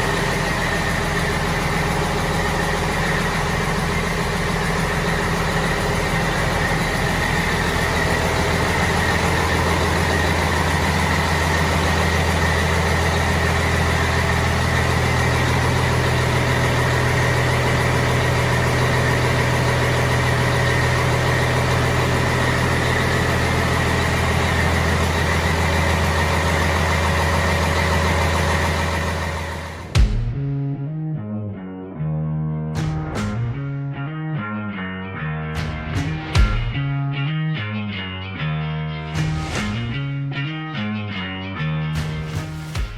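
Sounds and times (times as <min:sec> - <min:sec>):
diesel engine running: 0:00.0 - 0:30.8.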